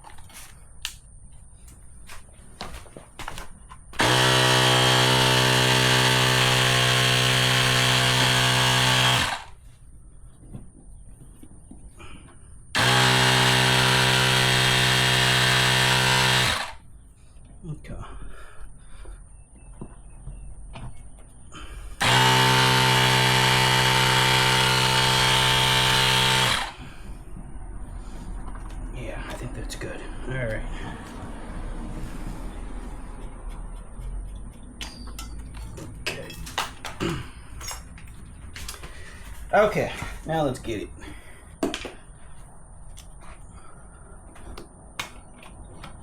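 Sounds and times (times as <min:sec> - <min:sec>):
air compressor running: 0:03.9 - 0:09.6, 0:12.7 - 0:16.9, 0:21.5 - 0:27.3.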